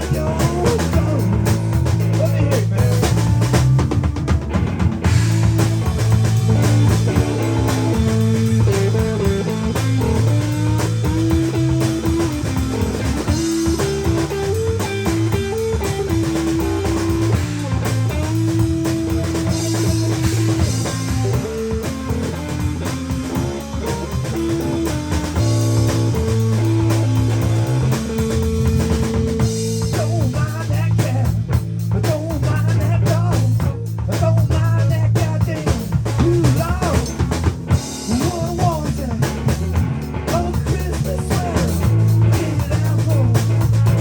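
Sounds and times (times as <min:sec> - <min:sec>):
guitar melody: 0:00.0 - 0:30.0
bass: 0:00.0 - 0:44.0
drum kit: 0:00.0 - 0:44.0.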